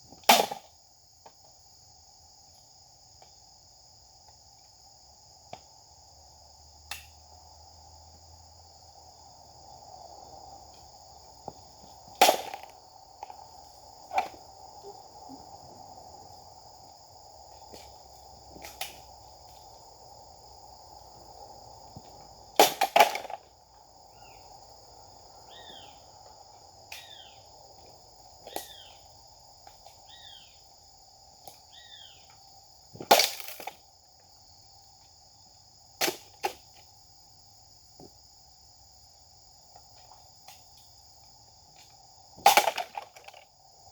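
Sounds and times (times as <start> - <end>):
insect drone: 0.0 - 43.9
bird chirping: 25.5 - 26.0.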